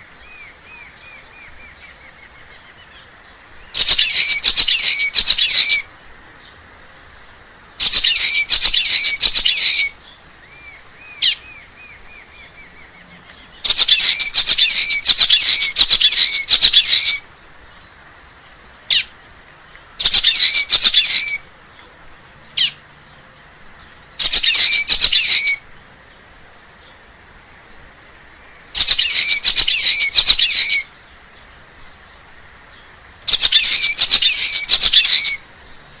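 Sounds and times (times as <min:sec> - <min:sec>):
bird buzzy song phrases: 0:00.0 - 0:36.0
bird call notes: 0:03.7 - 0:05.9, 0:07.8 - 0:17.2, 0:19.8 - 0:21.5, 0:24.2 - 0:25.7, 0:28.6 - 0:31.0, 0:33.3 - 0:36.0.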